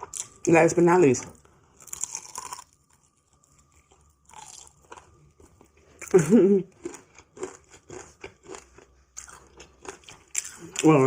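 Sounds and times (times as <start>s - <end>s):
fried chicken crunching: 1.8s - 5.7s, 6.7s - 11.0s.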